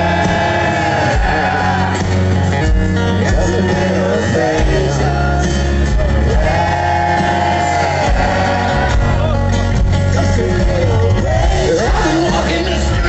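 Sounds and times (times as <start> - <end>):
rock band playing: 0.0 - 13.0
person singing: 3.2 - 9.3.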